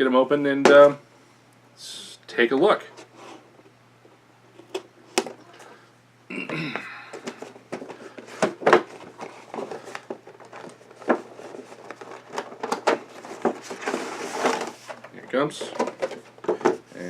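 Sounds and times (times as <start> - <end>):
packaging clicks and rustles: 7.1 - 16.8
contents sliding out of box: 7.2 - 15.0.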